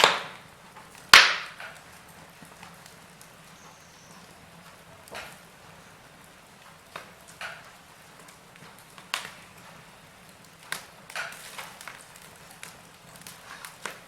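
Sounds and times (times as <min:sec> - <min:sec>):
sharp pops of fire: 0:00.0 - 0:03.6, 0:04.8 - 0:14.0
wood fire crackling: 0:00.0 - 0:14.0.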